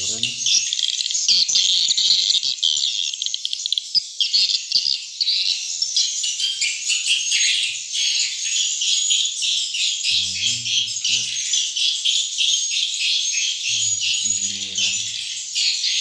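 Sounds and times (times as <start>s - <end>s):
swiftlets twittering: 13.7s - 15.5s.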